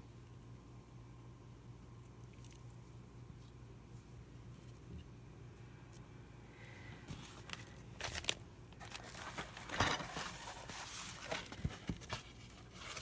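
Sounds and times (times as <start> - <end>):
paper rustling and crinkling: 7.1 - 13.0.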